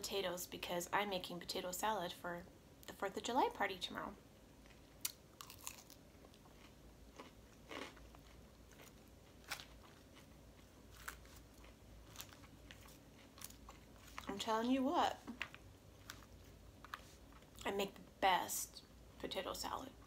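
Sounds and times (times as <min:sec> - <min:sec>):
chewing and crunching lettuce: 0:04.6 - 0:18.0.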